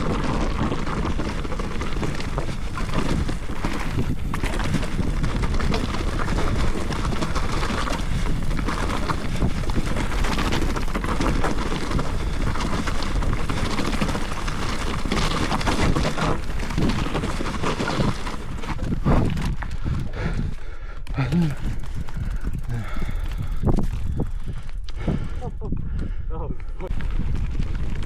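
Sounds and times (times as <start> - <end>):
bike rattling clatter: 0.0 - 25.4, 26.9 - 28.0
wind buffeting microphone: 0.0 - 28.0.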